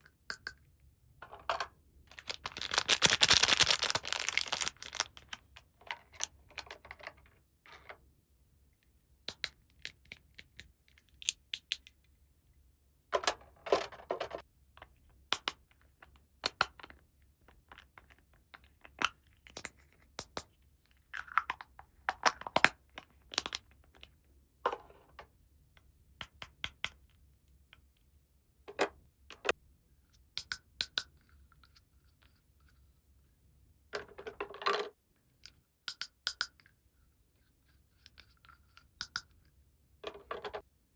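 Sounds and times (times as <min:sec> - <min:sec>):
packaging tearing and crinkling: 0:02.1 - 0:05.6
plastic toy pieces clicking: 0:02.1 - 0:06.7.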